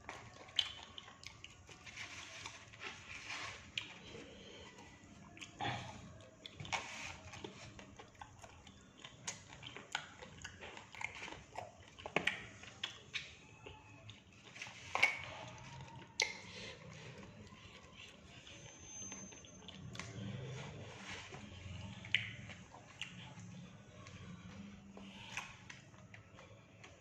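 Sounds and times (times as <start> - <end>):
person chewing food: 0.0 - 27.0
wet mouth smacks: 22.1 - 22.4.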